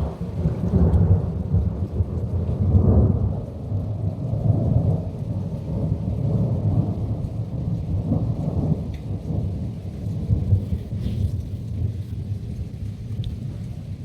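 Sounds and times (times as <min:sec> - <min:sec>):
rolling thunder: 0:00.0 - 0:14.0.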